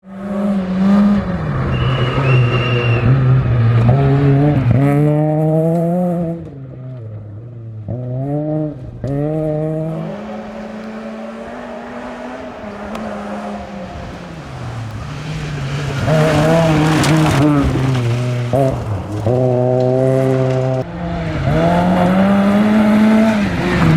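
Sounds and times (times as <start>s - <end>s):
rally car engine revving: 7.9s - 23.9s
tyre and road noise: 9.9s - 20.8s.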